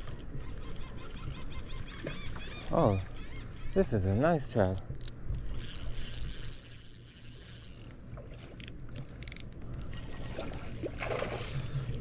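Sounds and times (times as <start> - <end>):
fishing reel whirring: 0.0 - 2.6, 4.5 - 9.5.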